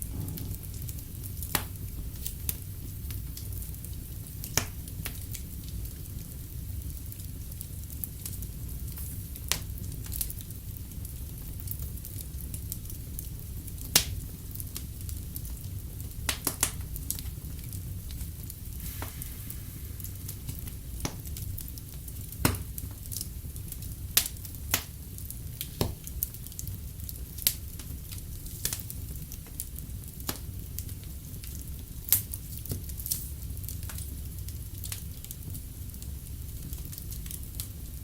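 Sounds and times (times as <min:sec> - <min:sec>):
low rumble: 0:00.0 - 0:02.5
fire popping: 0:00.0 - 0:38.0
wood fire crackling: 0:00.0 - 0:38.0.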